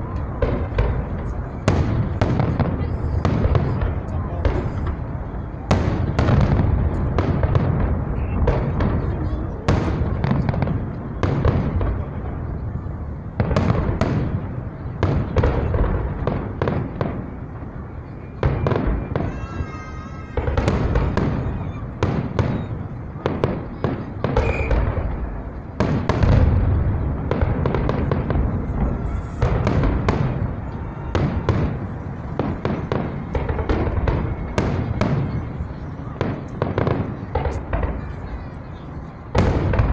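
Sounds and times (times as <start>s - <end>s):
fireworks bursting: 0.0s - 39.9s
warbling firework whistle: 18.2s - 23.0s, 24.3s - 25.2s.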